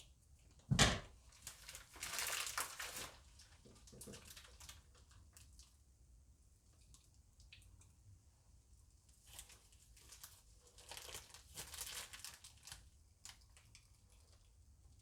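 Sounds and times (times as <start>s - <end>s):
plastic bag crinkling: 1.3s - 5.4s, 9.2s - 14.4s.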